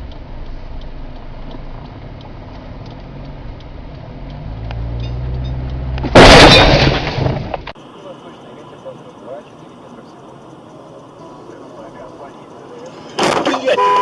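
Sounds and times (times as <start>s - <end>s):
car engine hum: 0.0s - 6.6s, 7.4s - 14.0s
car crash impact: 6.0s - 7.7s, 13.2s - 13.7s.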